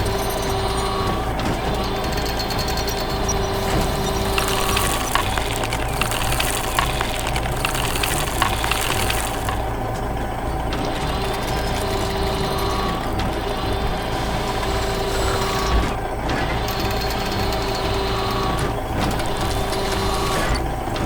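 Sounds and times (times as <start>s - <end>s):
heavy machine engine running: 0.0s - 21.0s.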